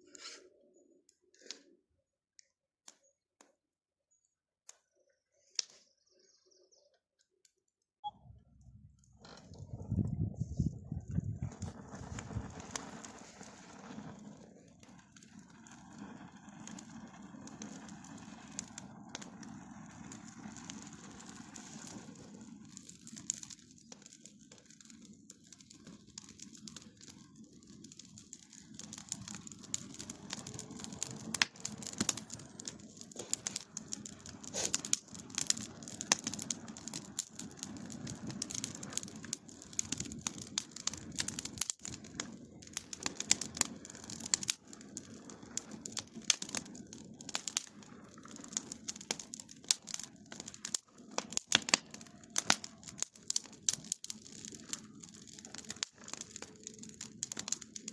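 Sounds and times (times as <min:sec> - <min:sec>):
sharp pops and snaps: 0:04.6 - 0:05.8, 0:20.6 - 0:57.9
steady low rumble: 0:08.2 - 0:13.2
bonfire crackling: 0:08.4 - 0:57.9.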